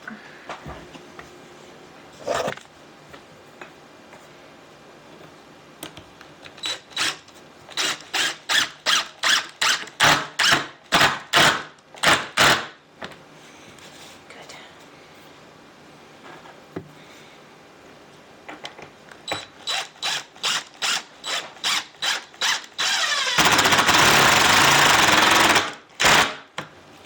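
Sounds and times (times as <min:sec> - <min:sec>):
hand tool working wood: 0:02.2 - 0:02.6.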